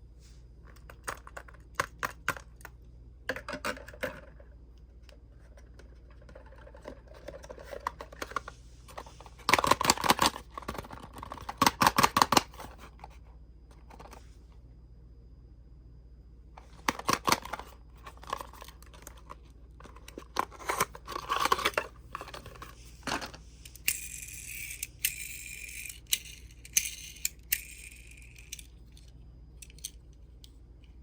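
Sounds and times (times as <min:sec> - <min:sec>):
toy pieces clicking and tapping: 0:23.7 - 0:30.0.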